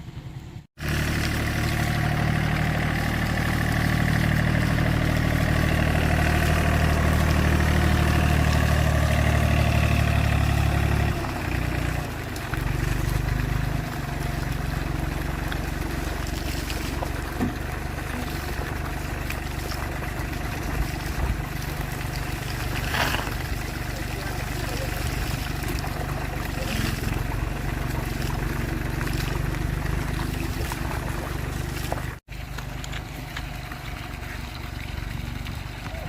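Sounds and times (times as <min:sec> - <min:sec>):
car engine idling: 0:00.0 - 0:36.0.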